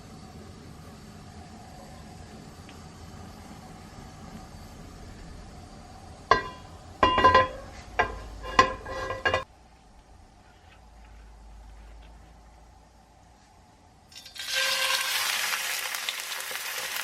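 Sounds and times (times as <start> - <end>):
tableware clinking: 6.3 - 9.5.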